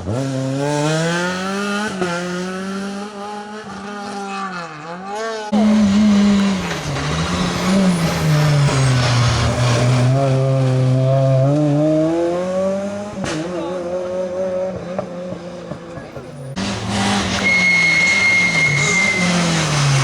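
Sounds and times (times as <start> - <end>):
rally car engine at high revs: 0.0 - 20.0
tyres sliding: 5.5 - 10.5, 16.5 - 20.0.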